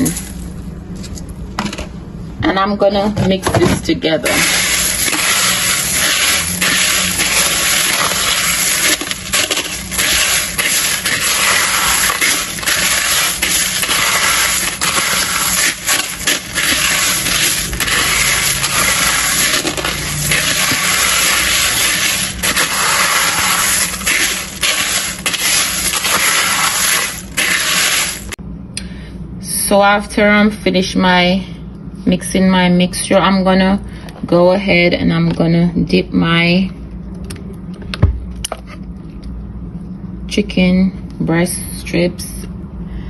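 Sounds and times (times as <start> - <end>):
cereal crunching in a bowl: 4.2 - 28.4.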